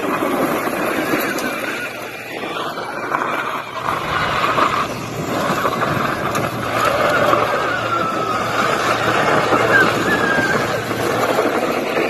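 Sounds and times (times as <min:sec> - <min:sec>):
motorcycle engine running: 0:03.6 - 0:12.0.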